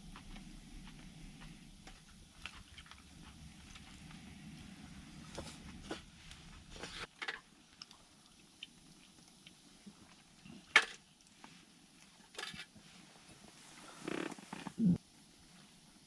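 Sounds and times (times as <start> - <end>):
campfire crackling: 0.0 - 10.4.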